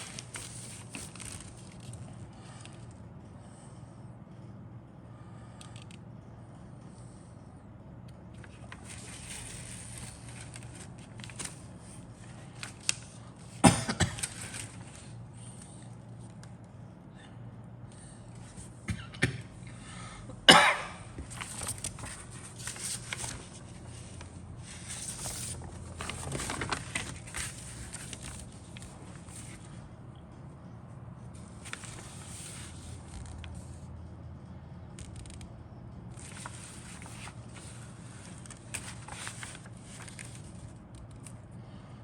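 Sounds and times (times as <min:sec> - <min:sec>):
plastic parts and bags rustling: 0:00.0 - 0:02.9, 0:08.4 - 0:15.1, 0:21.2 - 0:29.7, 0:36.2 - 0:41.3.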